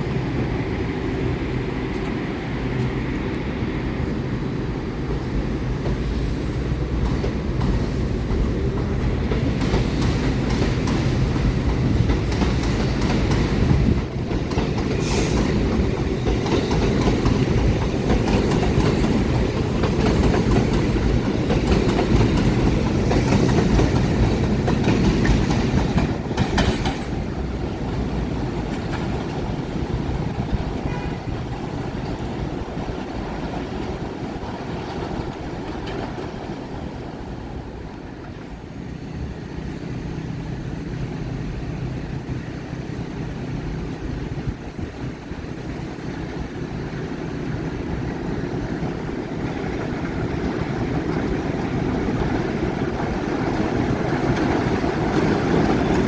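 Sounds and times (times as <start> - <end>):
train rumbling on steel viaduct: 0.0 - 56.0
train wheel clatter: 4.9 - 39.0, 42.3 - 56.0.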